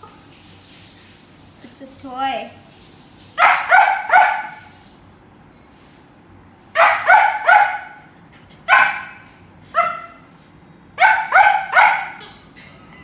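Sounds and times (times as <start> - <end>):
dog barking: 3.4 - 4.7, 6.8 - 8.1, 8.7 - 10.3, 11.0 - 12.2.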